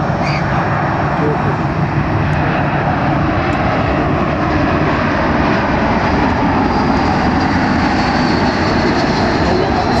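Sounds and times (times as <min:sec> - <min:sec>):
jet engines running: 0:00.0 - 0:10.0.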